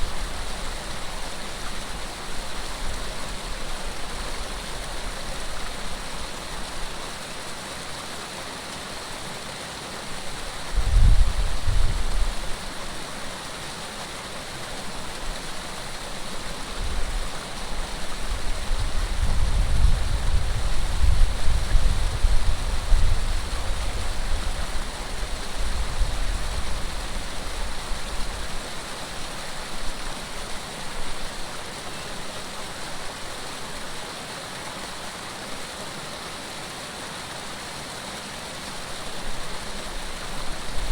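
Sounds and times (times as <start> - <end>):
water rushing: 0.0 - 40.9
wind buffeting microphone: 10.7 - 12.5, 16.8 - 28.4.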